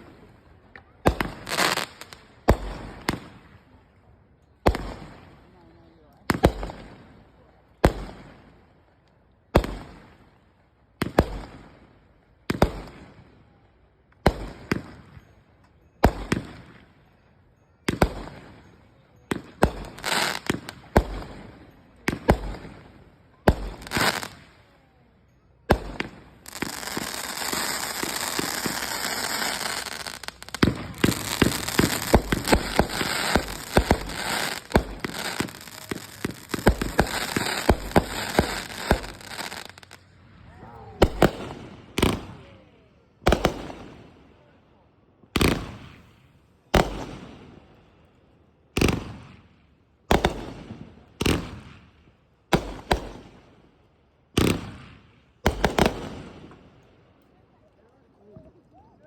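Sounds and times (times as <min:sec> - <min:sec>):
fireworks crackling and pops: 0:00.0 - 0:10.3, 0:10.9 - 0:11.8, 0:12.4 - 0:16.9, 0:17.8 - 0:44.1, 0:45.3 - 0:47.7, 0:48.7 - 0:59.0
fireworks loud bangs: 0:25.7 - 0:39.9, 0:41.0 - 0:42.4.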